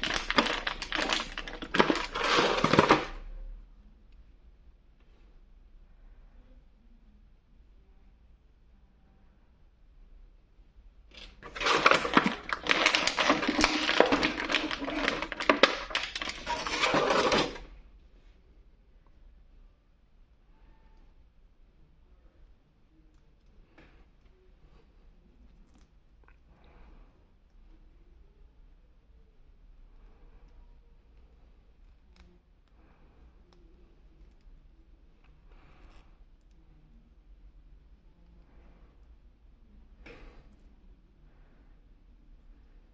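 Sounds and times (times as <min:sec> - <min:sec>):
plastic packaging crinkling: 0:00.0 - 0:03.2, 0:11.1 - 0:17.7.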